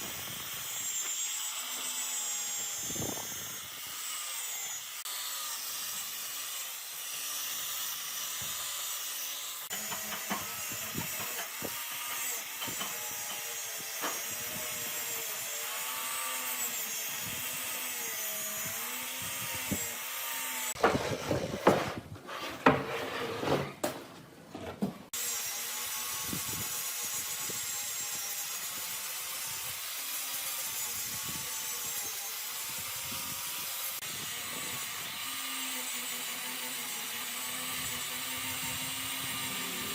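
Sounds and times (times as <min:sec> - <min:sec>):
power tool motor whine: 0:00.0 - 0:21.6, 0:25.1 - 0:39.9
scraping on wood: 0:20.8 - 0:25.1.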